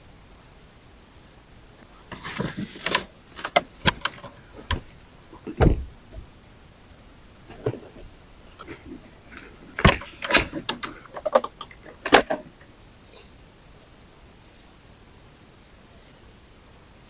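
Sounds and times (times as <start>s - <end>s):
wood knocking and scraping: 2.1s - 4.9s
heavy wood thump: 5.6s - 5.9s.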